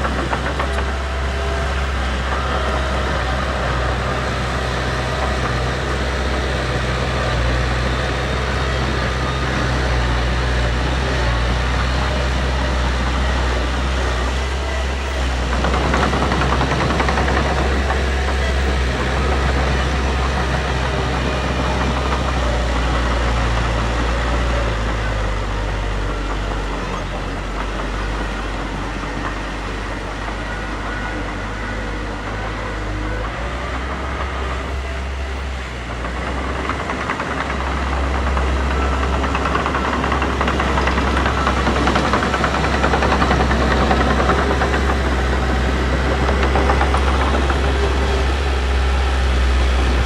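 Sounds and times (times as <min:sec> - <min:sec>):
heavy machinery diesel engine rumble: 0:00.0 - 0:50.0.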